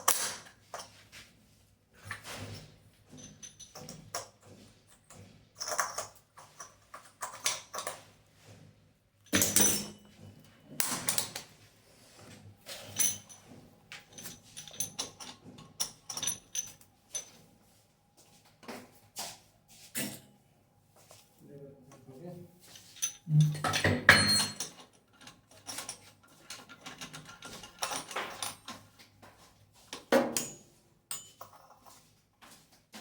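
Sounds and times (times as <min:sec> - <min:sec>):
tools and metal fittings rattling: 0:02.0 - 0:08.1, 0:09.3 - 0:11.4, 0:12.7 - 0:17.4, 0:22.6 - 0:29.0.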